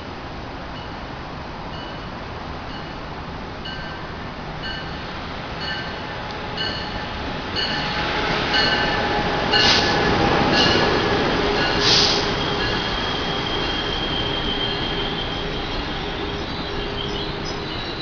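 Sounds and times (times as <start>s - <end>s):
train rumble: 0.0s - 18.0s
high wheel squeal: 7.6s - 18.0s
hissing bursts: 11.6s - 15.2s.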